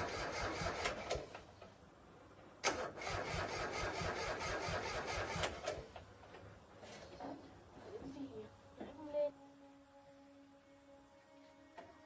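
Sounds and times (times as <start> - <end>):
diesel tractor engine cranking: 0.0 - 1.4, 2.6 - 6.0.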